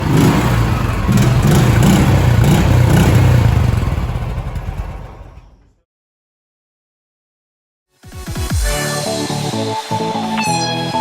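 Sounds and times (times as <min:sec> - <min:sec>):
motorcycle engine revving: 0:00.0 - 0:05.7.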